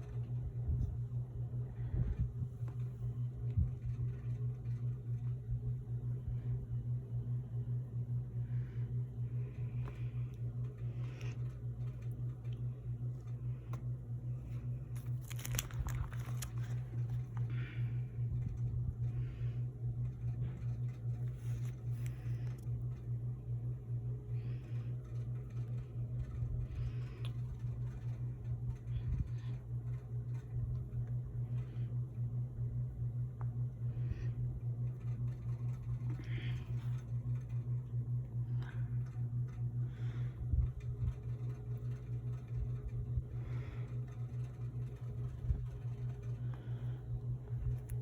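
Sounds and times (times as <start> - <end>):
steady low hum: 0.0 - 48.0
plastic crinkling and rustling: 14.9 - 17.3.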